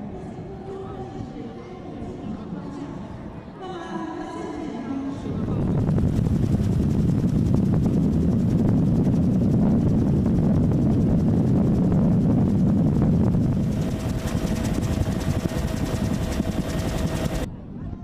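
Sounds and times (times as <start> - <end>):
helicopter rotor thudding: 5.8 - 17.5.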